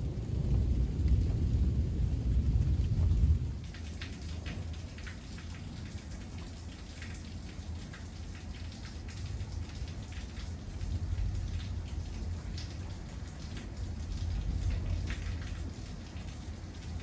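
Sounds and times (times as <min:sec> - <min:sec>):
low rumble: 0:00.0 - 0:03.6
heavy rain falling: 0:00.0 - 0:17.0
rain drop ticks: 0:00.0 - 0:17.0.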